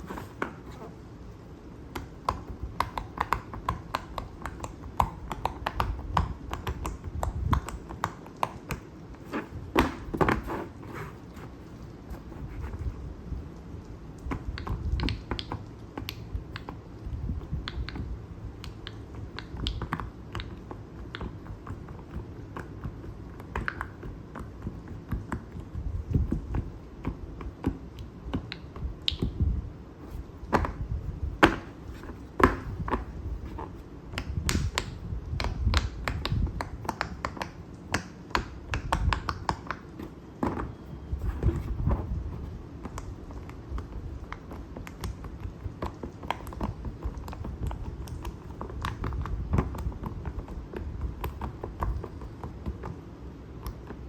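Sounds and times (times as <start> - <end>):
hands rustling: 0.0 - 1.1, 8.0 - 13.1.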